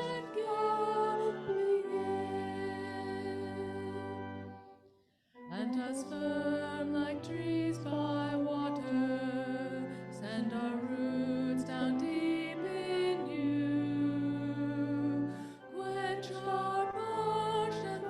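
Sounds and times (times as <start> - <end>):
hymn music: 0.0 - 18.0.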